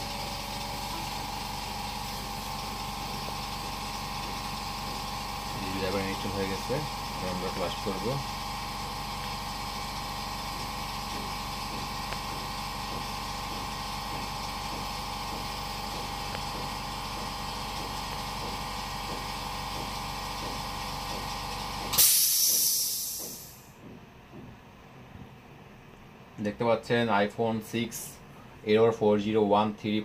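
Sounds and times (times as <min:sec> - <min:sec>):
electrical hum and whine: 0:00.0 - 0:30.0
short loud hiss: 0:22.0 - 0:23.5.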